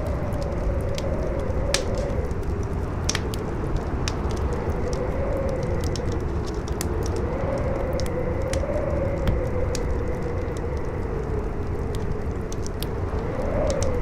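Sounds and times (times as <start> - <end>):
campfire crackling and popping: 0.0 - 14.0
howling wind: 0.0 - 14.0.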